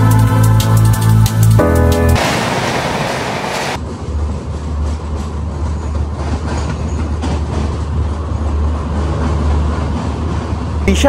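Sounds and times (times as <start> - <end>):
train rumbling along track: 0.0 - 11.0
wheels clicking over rail joints: 4.0 - 10.8.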